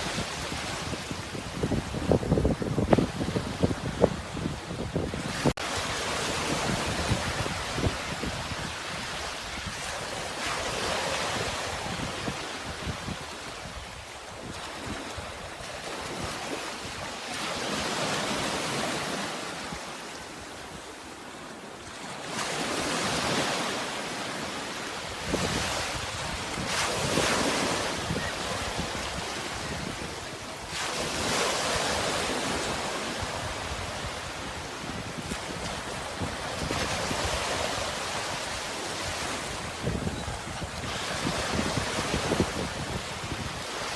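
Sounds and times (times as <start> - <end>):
sea waves breaking: 14.4 - 43.9.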